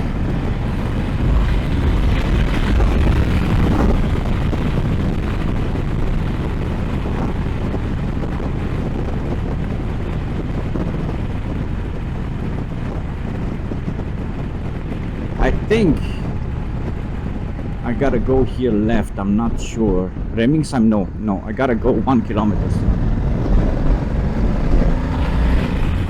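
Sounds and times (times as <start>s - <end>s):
road noise: 0.0s - 26.0s
wind rushing over microphone: 0.0s - 26.0s
motorcycle engine: 22.4s - 26.0s.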